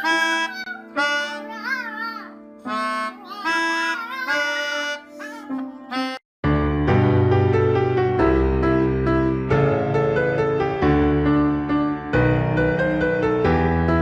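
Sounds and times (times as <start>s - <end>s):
melodica playing held notes: 0.0s - 2.0s, 2.6s - 6.2s.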